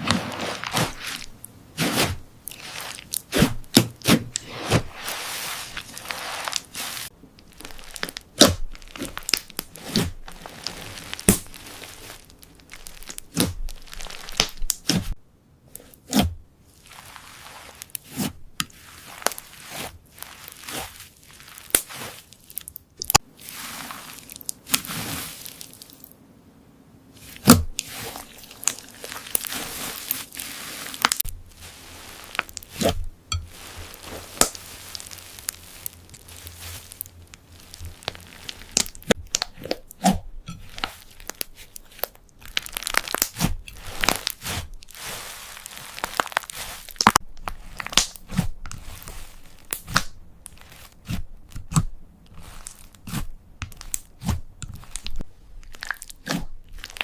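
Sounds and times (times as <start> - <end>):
slime squeezed by hand crackling: 0.0 - 15.2, 16.8 - 26.1, 27.2 - 57.0
slime snapping: 47.8 - 48.2.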